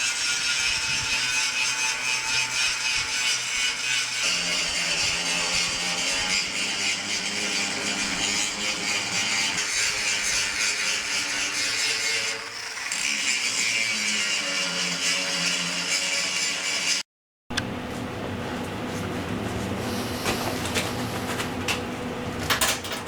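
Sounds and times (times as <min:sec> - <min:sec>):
angle grinder grinding metal: 0:00.0 - 0:17.0.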